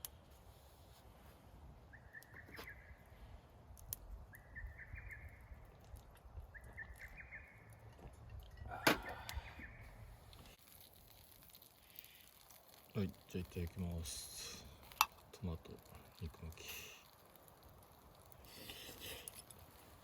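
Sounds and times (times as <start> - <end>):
bush warbler singing: 1.9 - 3.0, 4.3 - 5.7, 6.5 - 7.9.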